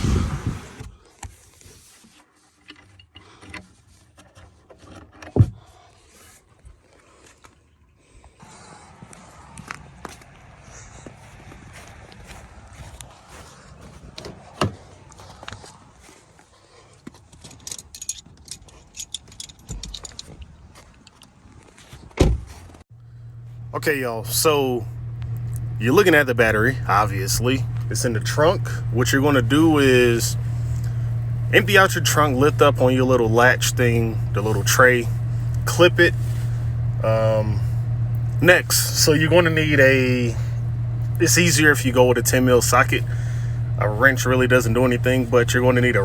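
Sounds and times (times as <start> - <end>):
loud thump: 0.0 - 1.0
tools and metal parts clicking: 17.3 - 21.3.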